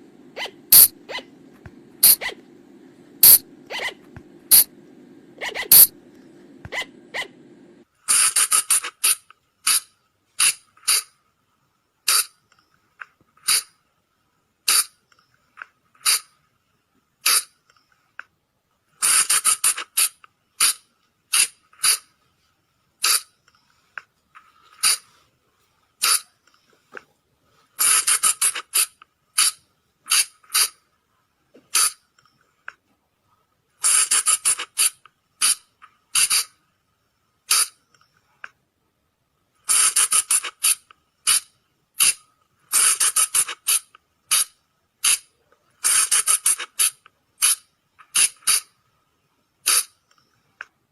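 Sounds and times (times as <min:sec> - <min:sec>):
animal calls high squeaks: 0:00.4 - 0:01.3, 0:02.0 - 0:02.4, 0:03.2 - 0:04.7, 0:05.4 - 0:05.9.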